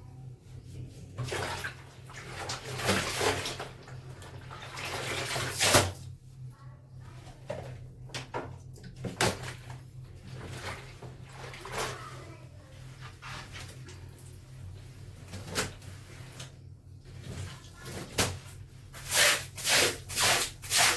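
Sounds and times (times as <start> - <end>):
clothes sloshing in water: 0.9 - 6.1, 8.6 - 19.0.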